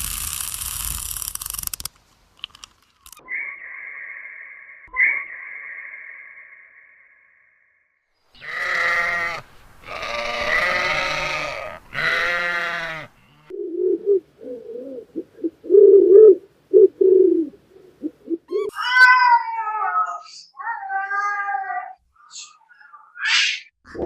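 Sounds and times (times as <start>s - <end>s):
goat bleating: 8.4s - 13.5s.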